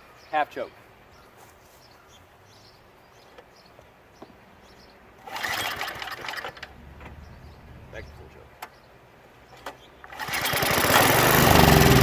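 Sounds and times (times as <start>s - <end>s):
engine recoil starter cranking: 5.2s - 7.3s, 10.1s - 12.0s.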